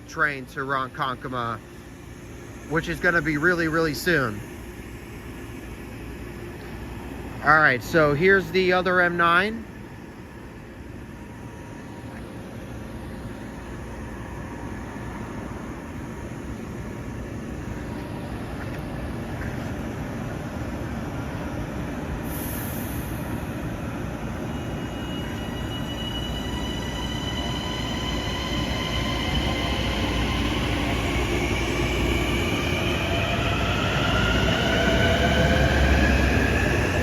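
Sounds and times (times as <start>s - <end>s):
electric train running: 19.9s - 37.0s
train motor whine rising: 22.2s - 37.0s.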